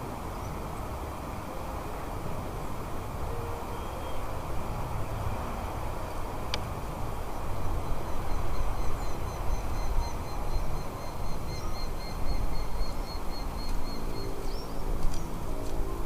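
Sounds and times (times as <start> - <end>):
bird chirping: 7.8 - 15.3.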